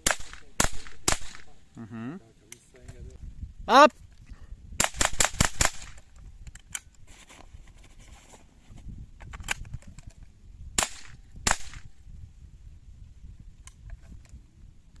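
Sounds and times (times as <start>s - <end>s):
rifle shots: 0.0s - 1.6s, 4.8s - 6.0s, 10.8s - 11.9s.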